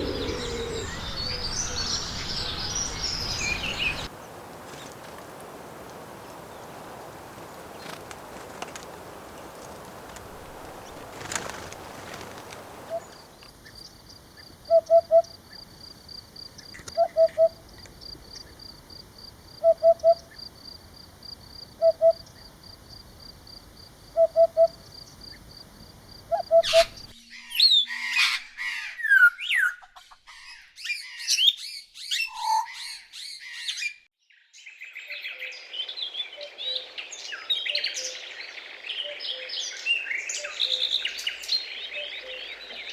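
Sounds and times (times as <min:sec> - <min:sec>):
bird chirps and whistles: 0:30.8 - 0:33.9.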